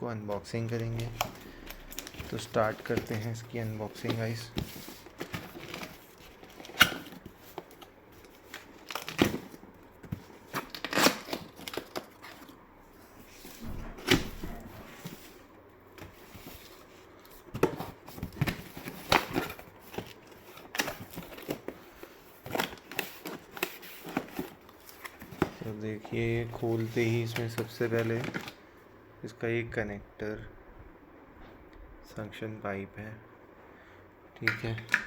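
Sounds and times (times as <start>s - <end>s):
cardboard rustling and tearing: 0.8s - 12.6s, 16.0s - 28.6s.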